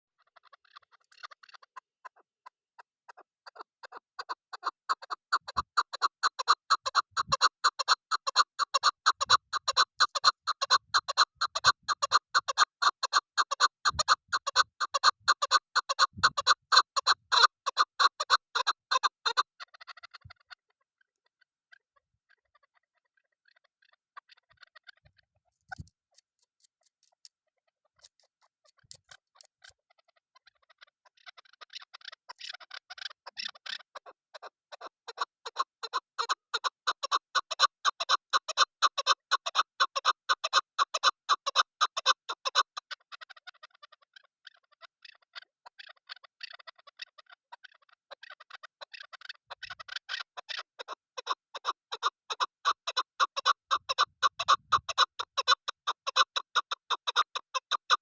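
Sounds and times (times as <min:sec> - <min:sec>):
partridge calling: 0:03.1 - 0:20.5, 0:30.5 - 0:58.0.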